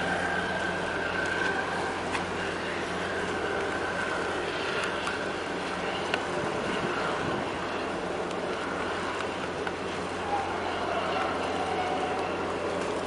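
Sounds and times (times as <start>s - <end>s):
low engine drone: 0.0s - 13.0s
faint ticks: 4.7s - 5.2s
wind noise on microphone: 5.4s - 8.3s.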